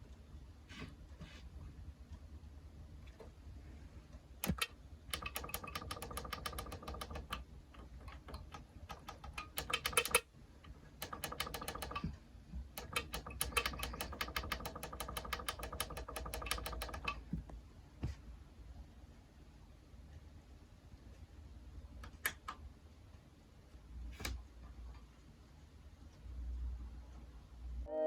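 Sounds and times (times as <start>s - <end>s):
rapid mechanical clicking: 4.4s - 10.3s, 11.0s - 17.3s.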